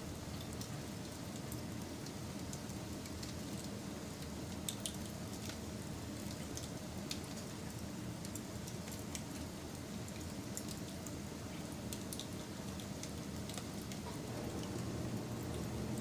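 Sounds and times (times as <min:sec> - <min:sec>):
wood fire crackling: 0:11.9 - 0:16.0.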